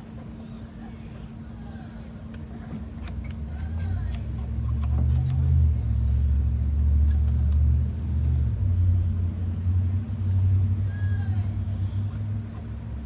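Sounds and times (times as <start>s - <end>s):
low motor rumble: 0.0s - 13.0s.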